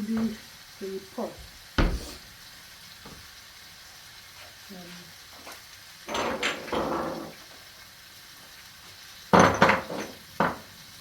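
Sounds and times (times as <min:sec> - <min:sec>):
sharp knocks: 0:01.8 - 0:02.2.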